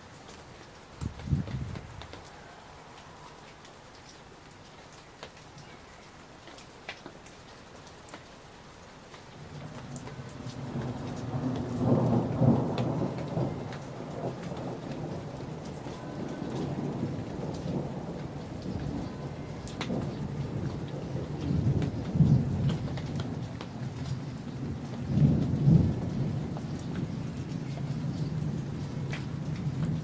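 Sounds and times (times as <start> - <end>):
rain pattering: 0.0 - 30.0
rolling thunder: 1.0 - 2.4, 9.5 - 30.0.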